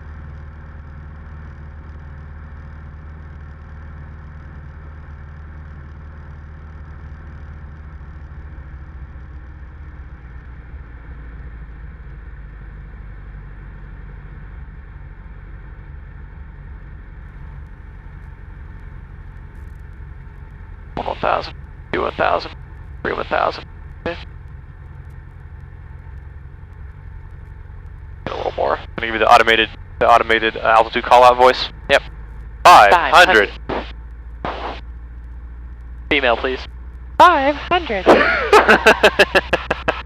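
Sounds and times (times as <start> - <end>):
light aircraft engine drone: 0.0 - 40.0.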